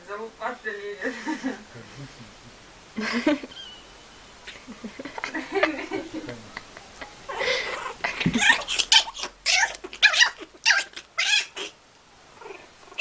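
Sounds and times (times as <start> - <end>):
cat yowling: 7.7 - 11.8.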